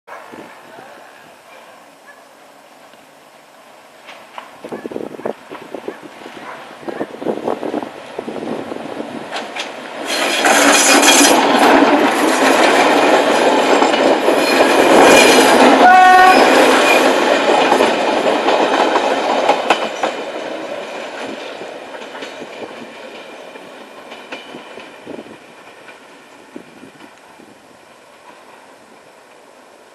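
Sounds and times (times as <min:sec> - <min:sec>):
diesel train passing: 0:00.1 - 0:29.9
train horn blast: 0:15.5 - 0:16.7.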